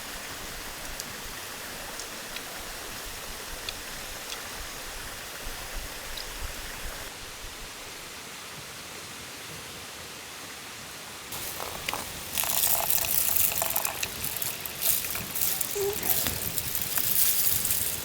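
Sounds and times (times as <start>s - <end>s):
crackling and rustling: 11.3s - 18.0s
steady rushing hiss: 11.3s - 18.0s.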